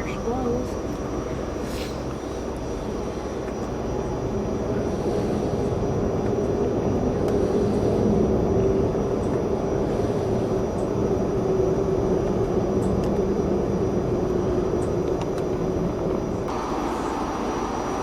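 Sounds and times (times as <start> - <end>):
low drone: 0.0 - 18.0
moving train rumble: 0.0 - 18.0.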